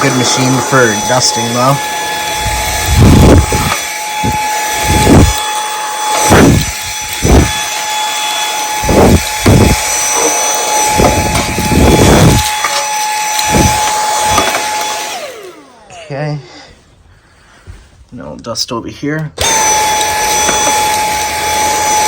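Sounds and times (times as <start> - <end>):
handheld vacuum motor whine: 0.0 - 16.1, 19.4 - 22.0
rushing air and bumping: 2.4 - 5.4, 6.3 - 7.6, 8.8 - 9.9, 10.9 - 12.4, 13.4 - 14.4.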